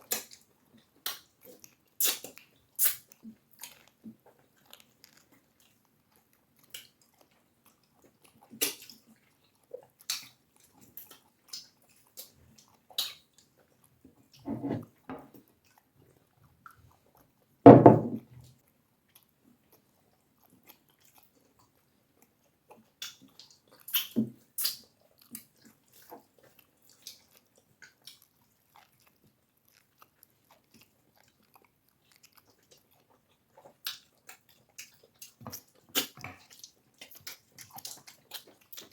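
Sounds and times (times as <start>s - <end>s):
chewing: 0.0s - 17.6s, 18.3s - 38.9s
wet mouth clicks: 2.0s - 3.8s, 8.5s - 9.0s, 12.9s - 13.4s, 23.0s - 26.2s, 33.8s - 38.9s
loud dull thud: 17.7s - 18.2s.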